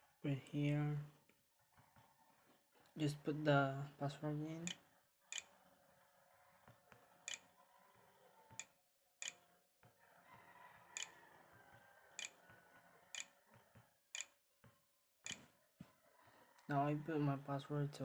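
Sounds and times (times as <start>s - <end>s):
faint mouse clicks: 12.2s - 12.4s.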